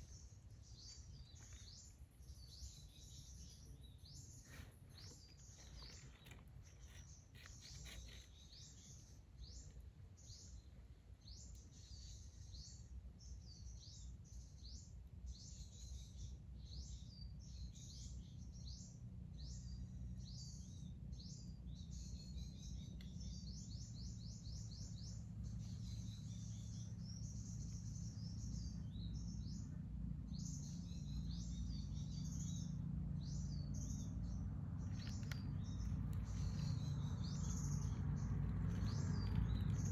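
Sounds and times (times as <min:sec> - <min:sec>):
small birds chirping: 0:00.0 - 0:39.9
low rumbling noise: 0:28.0 - 0:39.9.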